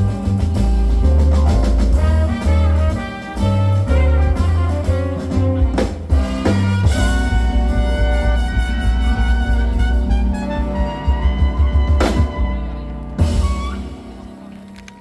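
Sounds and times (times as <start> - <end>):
sharp drum accents: 0.0 - 14.5
bass: 0.0 - 15.0
drum kit: 0.0 - 15.0
piano: 0.0 - 15.0
saxophone: 0.0 - 15.0
trumpet: 0.0 - 15.0.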